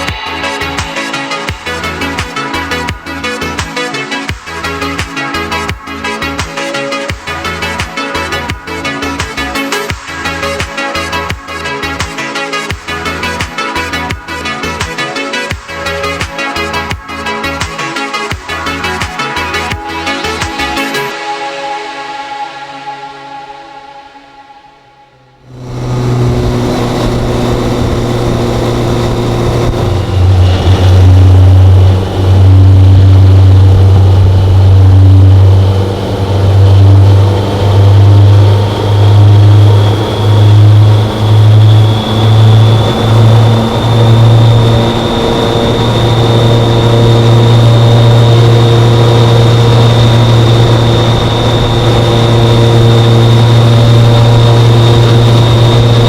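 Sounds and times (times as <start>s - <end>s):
faint high whine: 20.2s - 56.0s
motorcycle engine droning: 25.3s - 56.0s.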